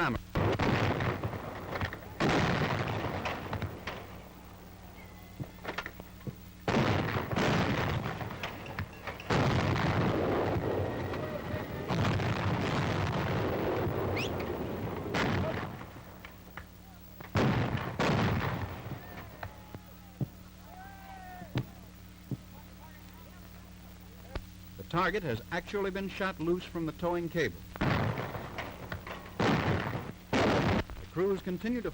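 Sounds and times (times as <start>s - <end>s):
anti-aircraft guns firing: 0.4s - 4.5s, 5.3s - 19.6s, 27.8s - 31.8s.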